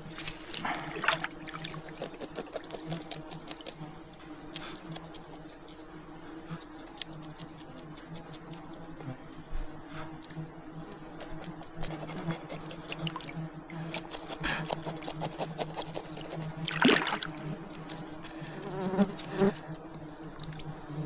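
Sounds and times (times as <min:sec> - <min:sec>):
flying insect buzzing: 0:00.0 - 0:21.0
water sounds: 0:00.2 - 0:02.6, 0:16.6 - 0:17.4.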